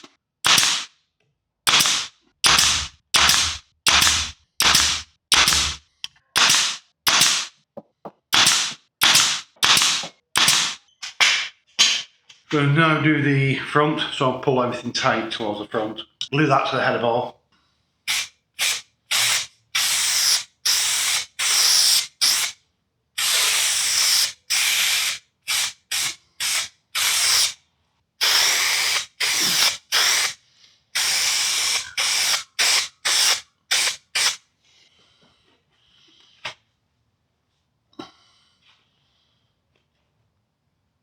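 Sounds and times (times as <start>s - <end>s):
adhesive spray hissing bursts: 1.7s - 5.8s, 18.1s - 22.6s, 23.2s - 27.6s, 28.2s - 34.4s.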